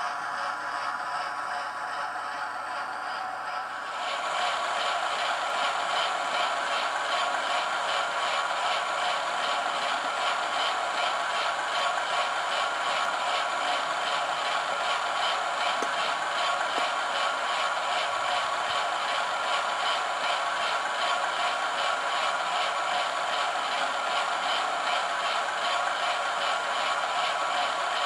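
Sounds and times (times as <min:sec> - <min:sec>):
model train diesel engine sound: 0:00.0 - 0:28.0.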